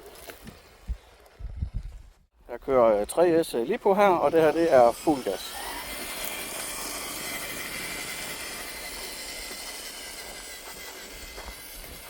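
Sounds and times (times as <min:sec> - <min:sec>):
hissy gear noise: 0:03.9 - 0:12.0
electric motor whine: 0:04.2 - 0:12.0.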